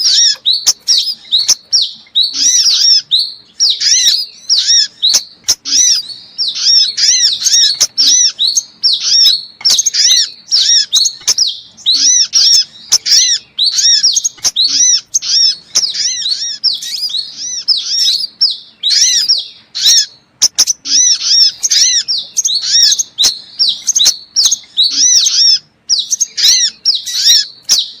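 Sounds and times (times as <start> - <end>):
high bird chirps: 0.0 - 28.0.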